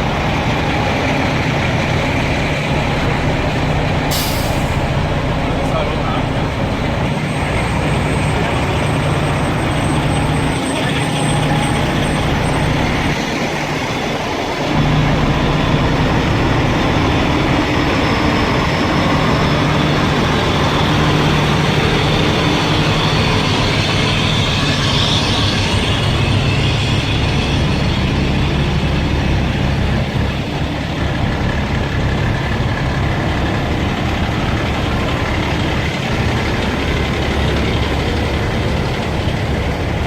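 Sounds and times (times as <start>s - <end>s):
fire truck engines idling: 0.0s - 40.0s.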